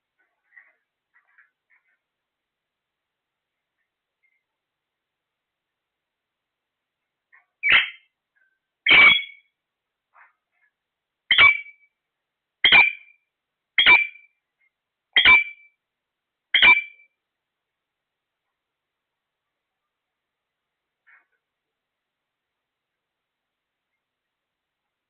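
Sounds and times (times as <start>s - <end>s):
parrot calls: 7.6s - 8.0s, 8.9s - 9.4s, 11.3s - 11.8s.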